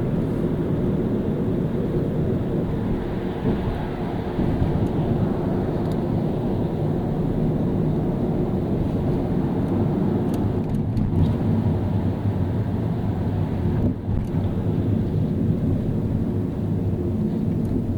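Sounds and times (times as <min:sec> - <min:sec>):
car engine and road rumble: 0:00.0 - 0:17.9.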